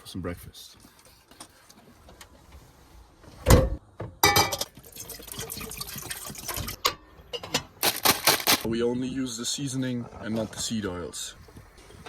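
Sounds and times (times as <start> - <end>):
cookware clicking and clattering: 4.2 - 4.8
liquid pouring and splashing: 4.6 - 6.8.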